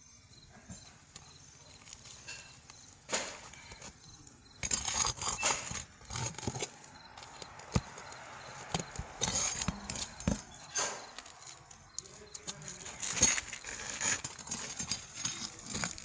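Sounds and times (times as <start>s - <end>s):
hand tool scraping roof shingles: 0.7s - 16.0s
sharp knocks: 4.6s - 11.6s.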